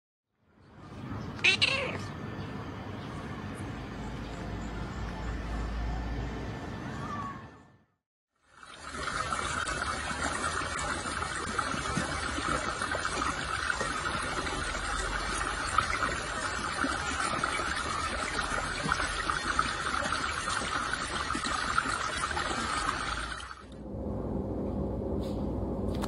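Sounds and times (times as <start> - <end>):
stream water trickling: 8.4 - 23.8.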